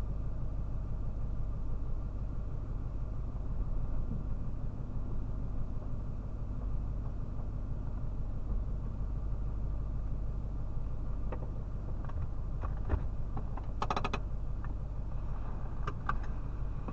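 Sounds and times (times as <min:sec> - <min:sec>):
car engine idling: 0:00.0 - 0:16.9
small clicks and knocks: 0:11.3 - 0:14.8.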